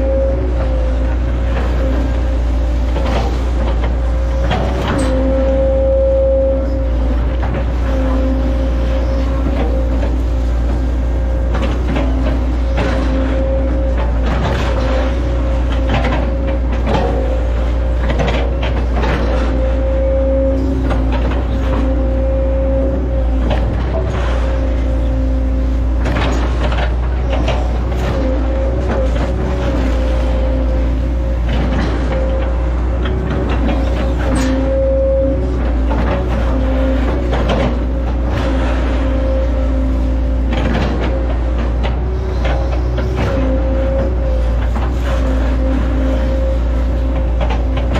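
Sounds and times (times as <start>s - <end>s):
excavator diesel engine droning: 0.0s - 47.9s
high hydraulic whine: 0.0s - 47.9s
cracks and knocks of trunks: 7.2s - 24.9s, 26.0s - 35.0s
sharp knocks and cracks: 11.5s - 17.3s.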